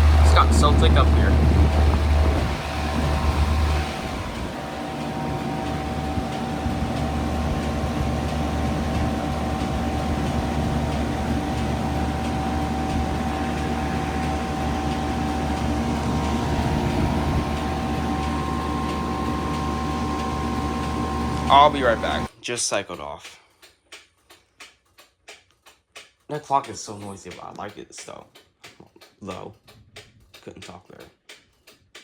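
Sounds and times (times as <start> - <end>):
heat pump humming: 0.0 - 22.3.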